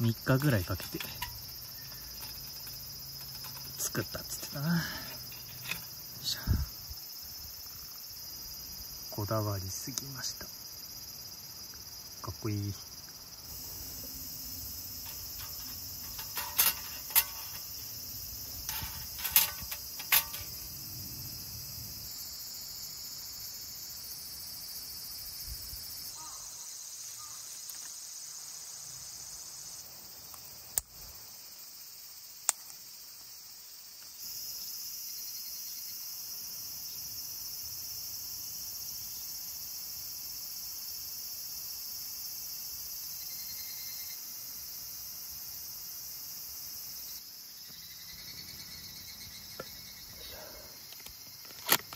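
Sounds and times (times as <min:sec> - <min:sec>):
crickets and insects chirping: 0:00.0 - 0:51.9
sharp clicks and knocks: 0:00.4 - 0:06.0, 0:15.0 - 0:20.6, 0:50.9 - 0:51.9.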